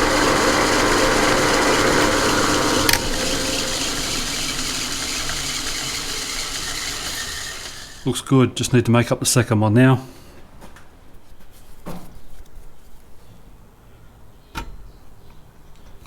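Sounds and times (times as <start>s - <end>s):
metal lathe running: 0.0s - 8.1s
lathe switch click: 1.9s - 3.2s.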